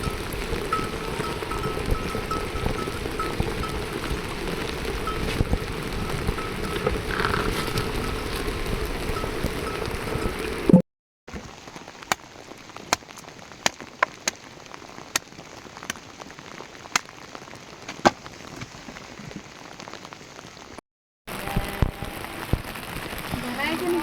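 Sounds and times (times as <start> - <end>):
faint steady hiss: 0.0 - 10.7
water dripping on hard surface: 0.0 - 10.7, 11.5 - 20.2, 21.3 - 24.0.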